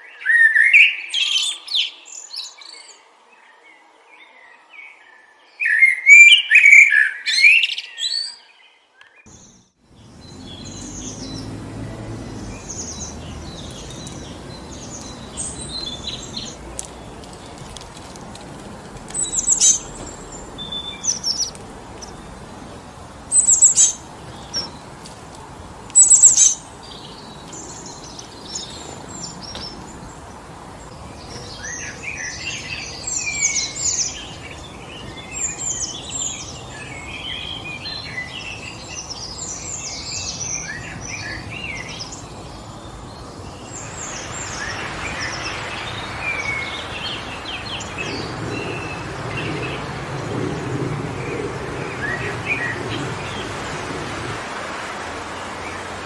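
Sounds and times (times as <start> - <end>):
songbirds singing: 0.0 - 56.0
wind blowing through trees: 9.2 - 56.0
bird chattering: 12.5 - 22.5
sharp high bird calls: 19.1 - 22.4, 23.3 - 24.8.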